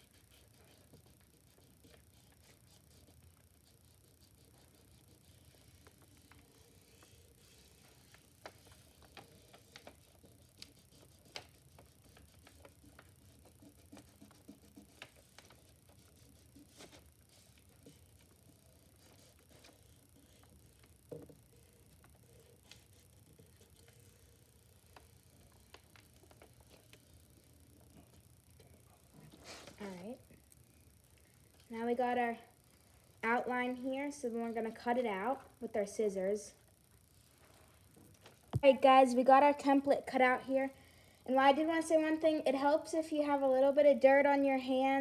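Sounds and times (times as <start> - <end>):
paper rubbing: 0.0 - 27.5.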